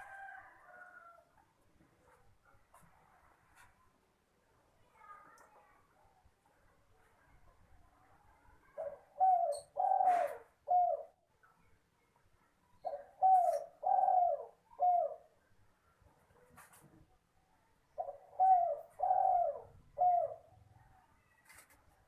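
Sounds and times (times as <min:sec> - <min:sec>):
dove cooing: 0:08.7 - 0:11.2, 0:12.8 - 0:15.4, 0:18.0 - 0:20.9.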